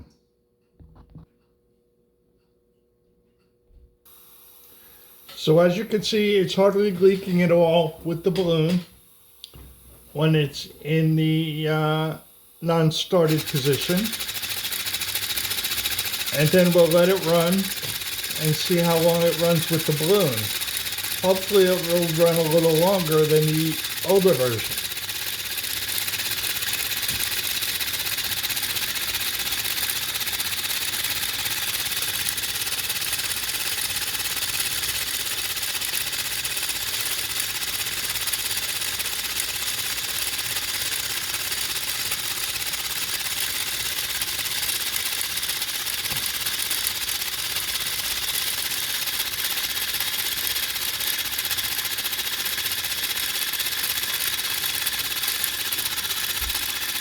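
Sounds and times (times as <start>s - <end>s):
compressed-air engine clattering: 12.6s - 57.0s.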